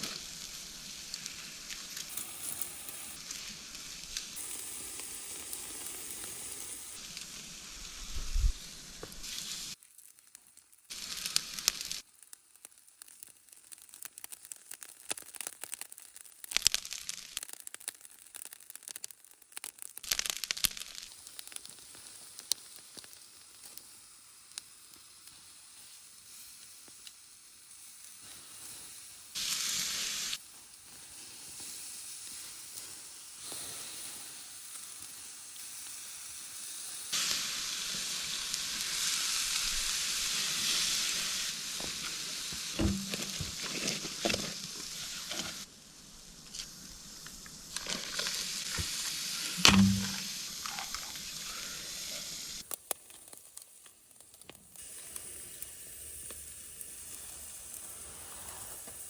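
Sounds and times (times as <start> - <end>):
food sizzling in a pan: 0.0 - 59.0
sharp knocks: 49.6 - 50.3.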